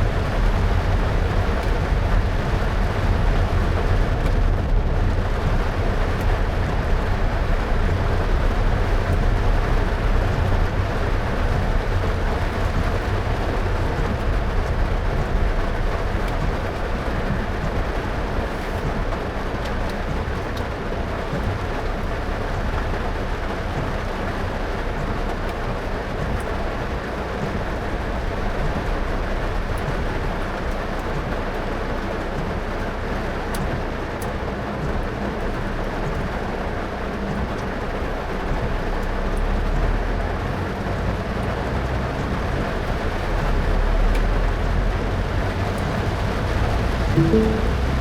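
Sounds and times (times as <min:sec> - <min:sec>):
car road rumble: 0:00.0 - 0:48.0
heavy rain: 0:00.0 - 0:48.0
tyres hissing on wet road: 0:00.0 - 0:48.0.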